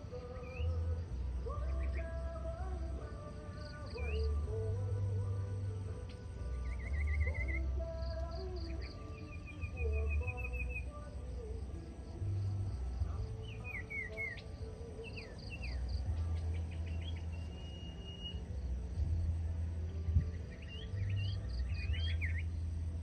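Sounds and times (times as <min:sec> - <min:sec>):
songbird trilling and whistling: 0:00.1 - 0:02.6, 0:03.5 - 0:04.7, 0:06.0 - 0:11.2, 0:12.6 - 0:19.0, 0:20.2 - 0:22.7.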